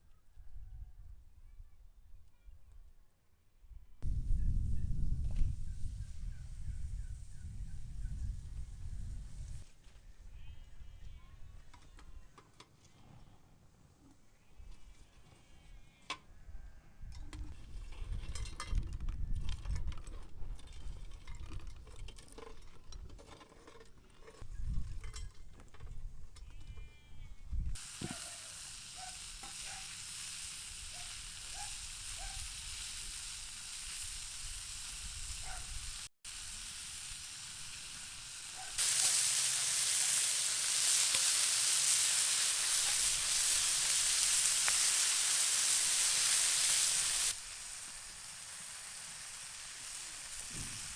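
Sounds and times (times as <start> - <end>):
food frying and sizzling: 27.8 - 50.9.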